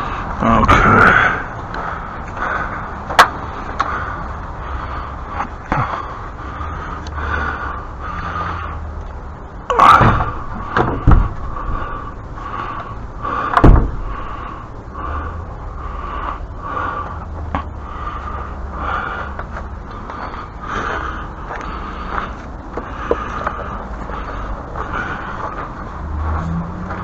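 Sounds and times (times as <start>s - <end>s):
steady low rumble: 0.0s - 27.0s
loud knocks and thumps: 9.9s - 11.5s, 13.6s - 14.1s.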